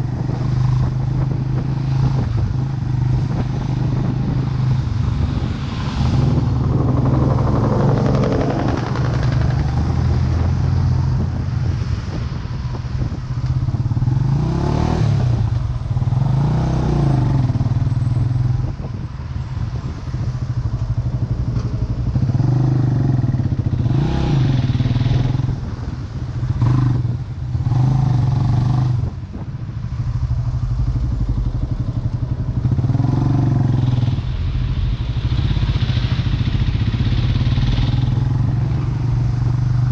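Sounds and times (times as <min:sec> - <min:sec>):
motorcycle engine revving: 0:00.0 - 0:11.7, 0:20.4 - 0:39.9.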